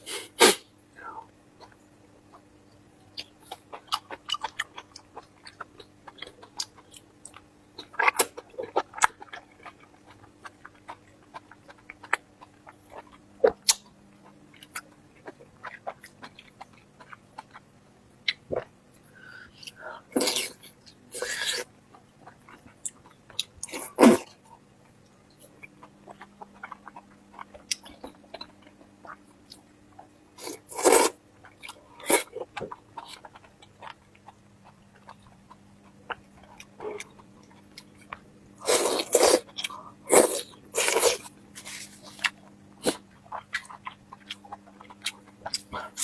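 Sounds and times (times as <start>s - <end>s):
slurps or sniffs: 0.0s - 0.6s, 30.4s - 31.1s, 38.6s - 39.4s
faint steady hum: 0.0s - 46.0s
person chewing: 3.2s - 17.7s, 19.6s - 24.4s, 25.5s - 46.0s.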